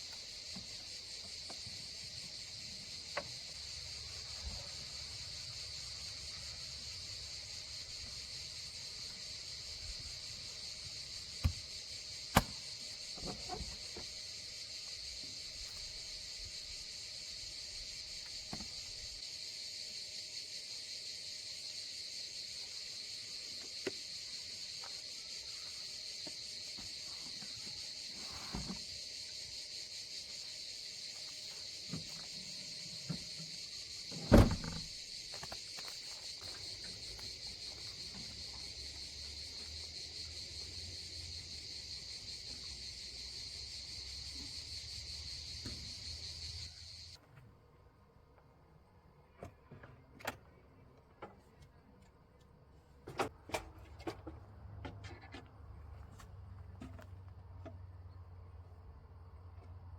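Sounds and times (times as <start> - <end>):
insects chirring: 0.0 - 47.2.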